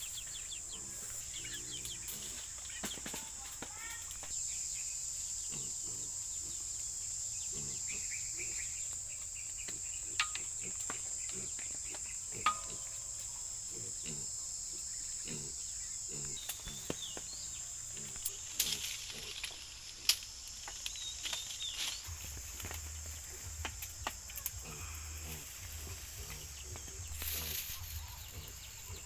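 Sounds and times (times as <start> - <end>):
high-pitched insect chorus: 0.0 - 29.0
rustles: 16.1 - 29.0.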